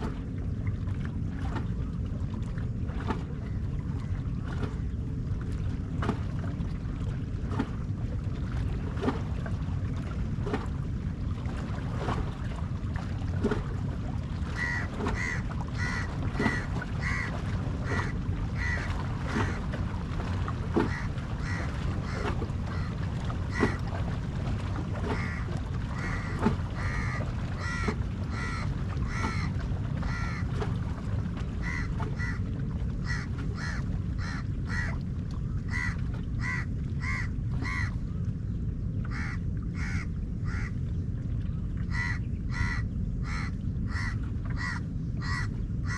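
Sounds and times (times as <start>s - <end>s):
steady low rumble: 0.0s - 45.9s
crows cawing: 14.6s - 19.6s, 20.9s - 23.8s, 25.1s - 30.5s, 31.6s - 32.4s, 33.1s - 34.9s, 35.7s - 37.9s, 39.1s - 40.7s, 41.9s - 45.9s.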